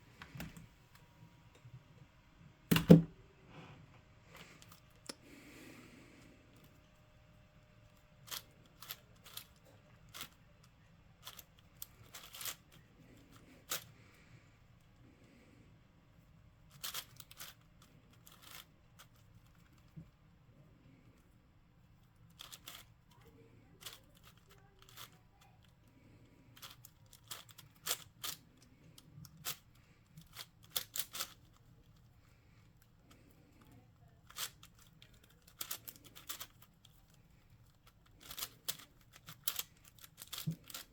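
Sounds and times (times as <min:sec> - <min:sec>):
puzzle cube plastic clicks: 0:08.2 - 0:10.4, 0:11.2 - 0:12.8, 0:16.7 - 0:19.9, 0:22.3 - 0:22.9, 0:26.6 - 0:31.6, 0:34.3 - 0:40.9.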